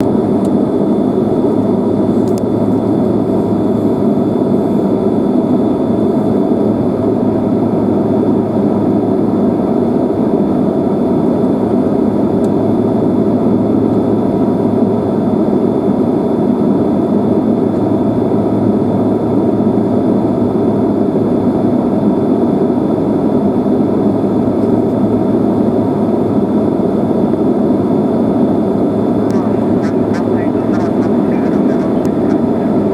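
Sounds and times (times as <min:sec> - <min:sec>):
jet engine cabin noise: 0:00.0 - 0:32.9
faint high whine: 0:29.0 - 0:32.9.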